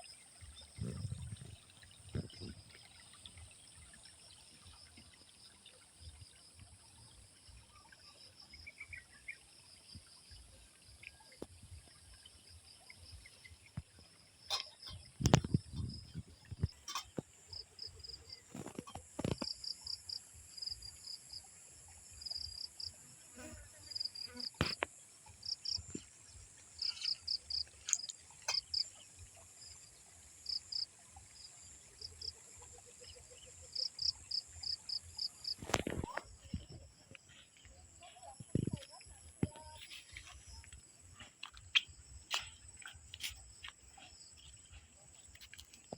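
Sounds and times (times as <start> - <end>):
high-pitched insect hum: 22.2 - 29.0.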